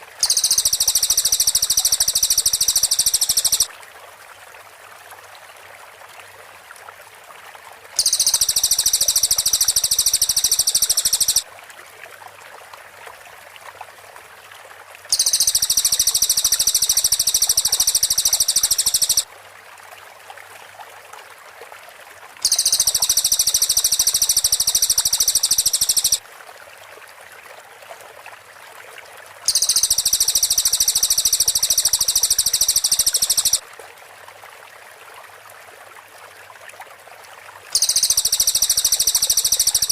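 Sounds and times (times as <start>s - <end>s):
faint steady hiss: 0.0s - 28.0s, 28.6s - 39.9s
bird singing rapid high trill: 0.2s - 3.7s, 8.0s - 11.4s, 15.1s - 19.2s, 22.4s - 26.2s, 29.5s - 33.6s, 37.8s - 39.9s.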